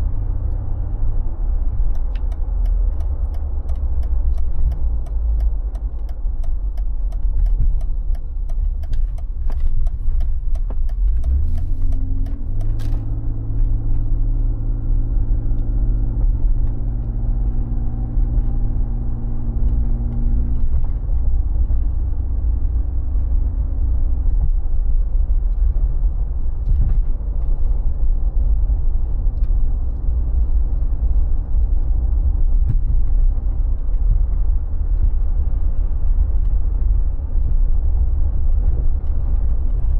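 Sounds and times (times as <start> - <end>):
car engine and road rumble: 0.0 - 39.9
sharp clicking: 1.9 - 13.1.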